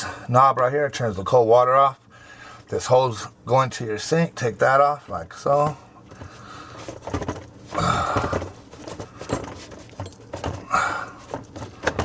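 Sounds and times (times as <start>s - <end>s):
metal clicks and scraping: 6.8s - 12.0s.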